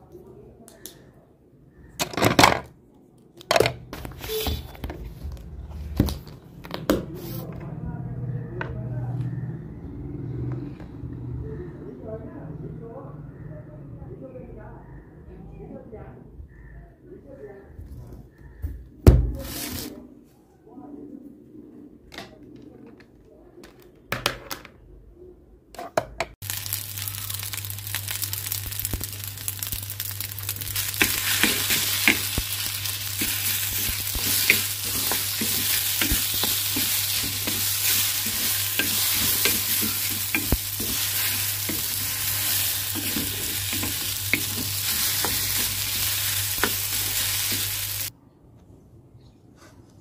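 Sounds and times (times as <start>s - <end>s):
fried rice sizzling in pan: 26.4s - 48.1s.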